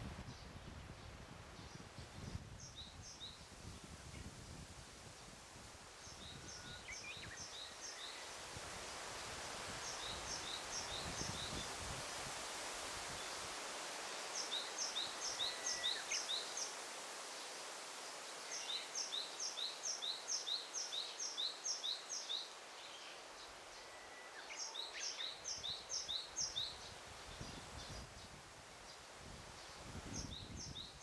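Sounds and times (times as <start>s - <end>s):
forest ambience hiss: 0.0s - 31.0s
songbird chirping: 6.0s - 8.4s, 14.0s - 16.8s, 17.4s - 31.0s.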